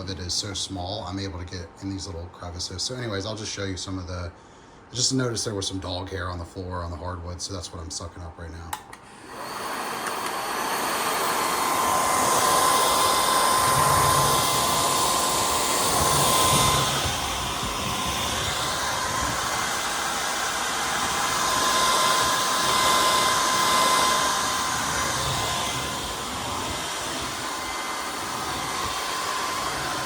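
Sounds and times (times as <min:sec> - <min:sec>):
stick vacuum running: 0:08.7 - 0:30.0.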